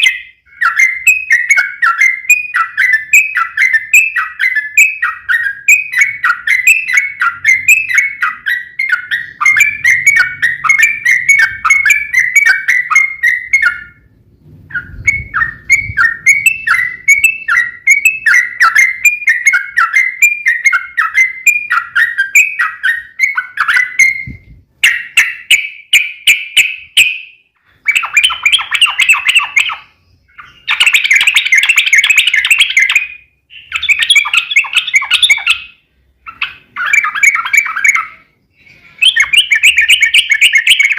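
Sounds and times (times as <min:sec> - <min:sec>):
bulbul singing chattering notes: 0:14.7 - 0:40.9.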